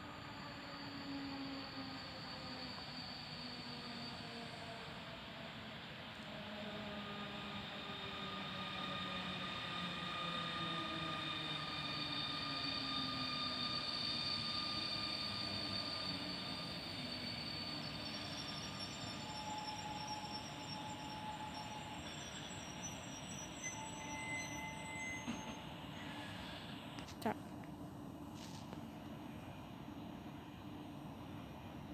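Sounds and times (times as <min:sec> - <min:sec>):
train wheels rolling: 0:00.2 - 0:27.7
high squealing tones: 0:11.7 - 0:25.7.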